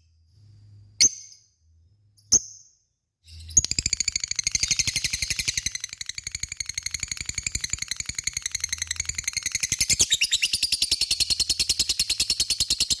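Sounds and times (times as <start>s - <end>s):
lovebird chattering trill: 3.4s - 13.0s.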